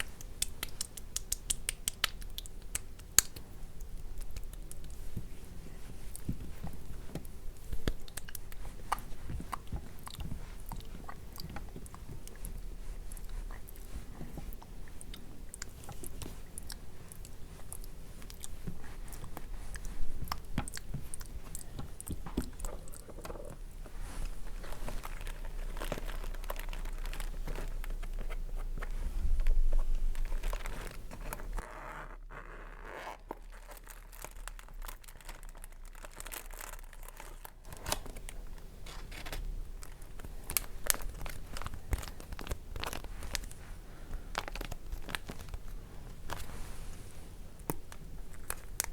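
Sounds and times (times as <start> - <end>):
bag crinkling: 22.5 - 31.6, 32.8 - 46.6.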